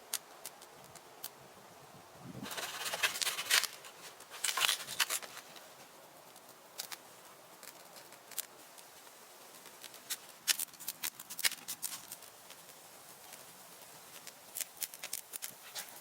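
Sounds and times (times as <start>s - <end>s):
small snaps and clicks: 0.1s - 1.4s, 6.3s - 7.0s, 7.6s - 8.9s, 9.6s - 16.0s
dry leaves rustling and crackling: 2.4s - 16.0s.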